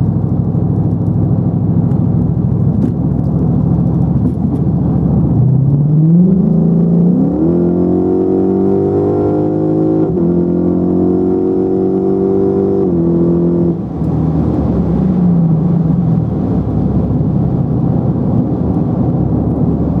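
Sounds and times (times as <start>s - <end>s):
road noise: 0.0s - 20.0s
car engine accelerating: 0.1s - 20.0s.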